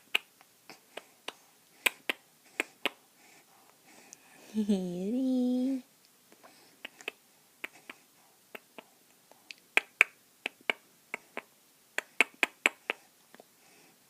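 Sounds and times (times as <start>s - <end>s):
person clicking tongue: 6.8s - 7.9s.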